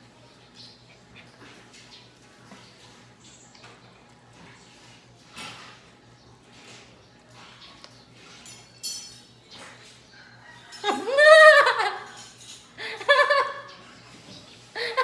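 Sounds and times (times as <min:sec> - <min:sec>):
faint eating noises: 0:00.0 - 0:11.1
high-pitched vocal cry: 0:10.8 - 0:12.1
person laughing: 0:10.8 - 0:12.2, 0:12.8 - 0:13.7, 0:14.8 - 0:15.0.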